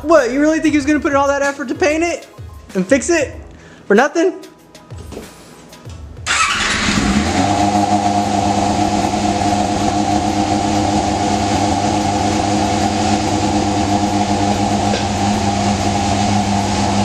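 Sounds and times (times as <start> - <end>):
motorcycle engine idling: 6.3 - 17.0.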